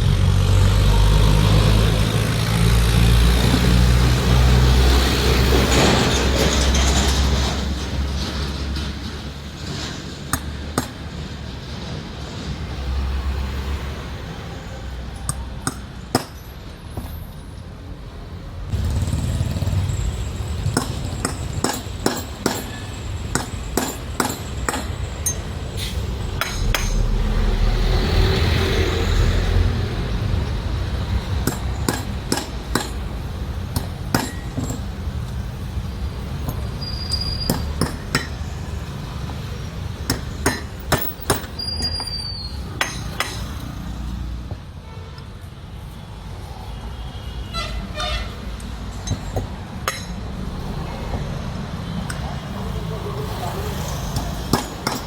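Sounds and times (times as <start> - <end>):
hammer striking metal: 20.6 - 29.1, 31.4 - 35.0, 36.4 - 38.5, 40.0 - 42.0, 42.8 - 43.6, 49.0 - 50.4, 54.2 - 55.0
low steady rumble: 26.2 - 30.0.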